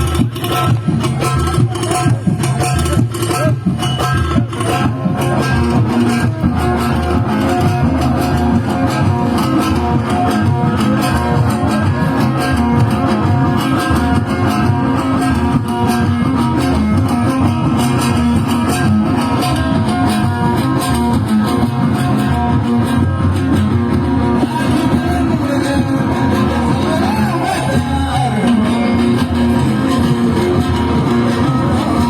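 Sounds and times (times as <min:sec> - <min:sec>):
guitar-led instrumental band music: 0:00.0 - 0:32.0.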